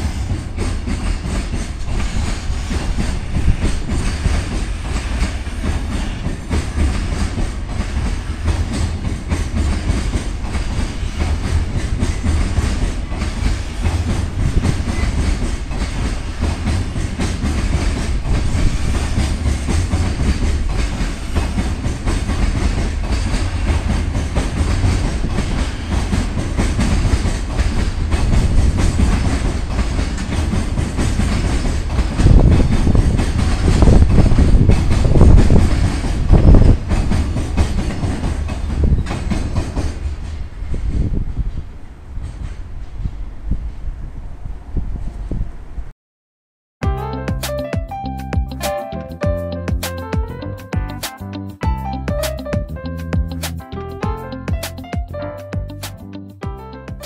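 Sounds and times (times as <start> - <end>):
wheels clickety-clack on track: 0.0 - 41.6
freight train wheels rumbling: 0.0 - 45.9, 46.8 - 57.0.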